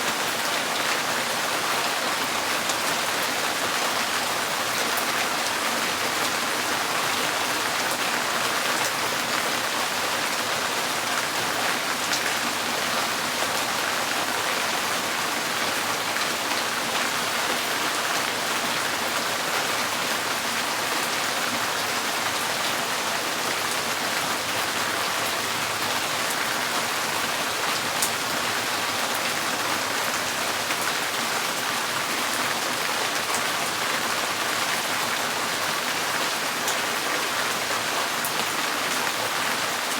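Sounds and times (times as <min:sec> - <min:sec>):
rain on a tin roof: 0:00.0 - 0:39.9.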